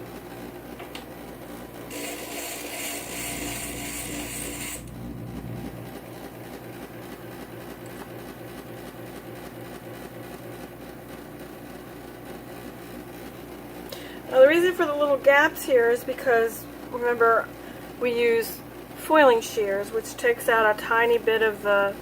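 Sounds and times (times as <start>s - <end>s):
grinder motor running: 1.8s - 9.8s.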